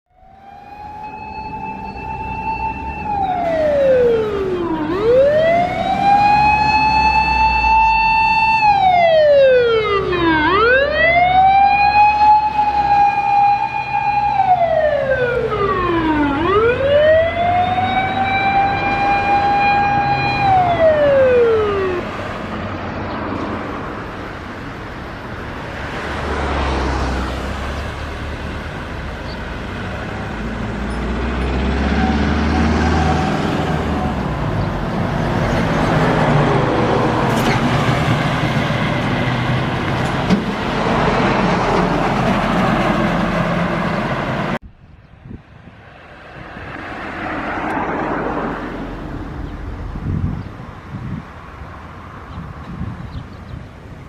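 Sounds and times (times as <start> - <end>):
fire engine siren winding down: 0.1 - 22.3, 29.8 - 44.6
passing traffic: 0.1 - 54.0.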